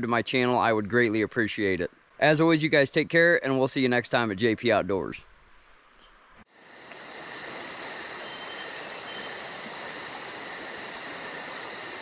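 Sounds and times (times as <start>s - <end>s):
crickets trilling: 6.5s - 12.0s.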